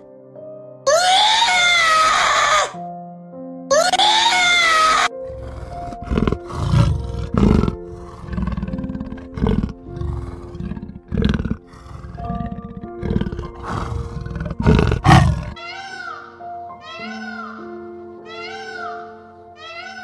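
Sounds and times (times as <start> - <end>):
background music: 0.0 - 20.0
wailing calls: 0.9 - 2.8, 3.7 - 7.1
leopard roaring: 5.0 - 15.6.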